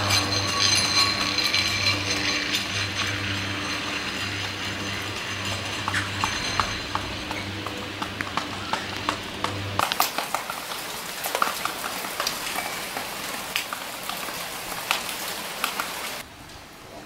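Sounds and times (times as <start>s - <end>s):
low steady hum: 0.0s - 11.2s
raindrops ticking on hard surfaces: 0.0s - 16.8s
rain hissing: 0.0s - 17.0s.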